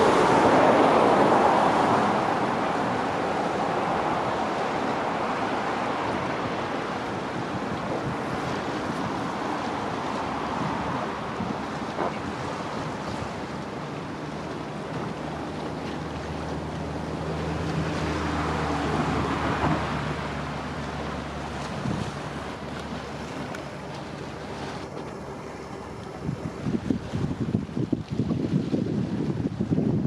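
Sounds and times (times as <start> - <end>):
boat engine droning: 0.0 - 30.0
water wash: 0.0 - 30.0
wind on microphone: 0.0 - 30.0.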